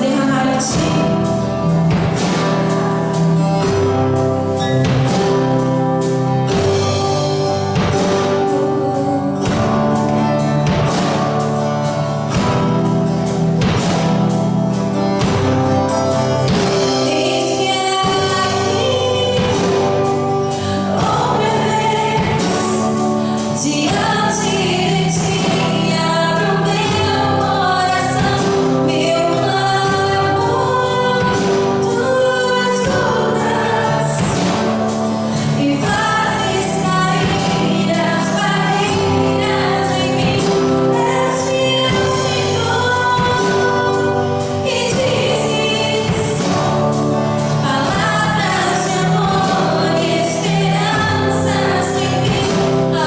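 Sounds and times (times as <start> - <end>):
instrumental backing: 0.0 - 53.0
group singing gospel song: 15.9 - 53.0.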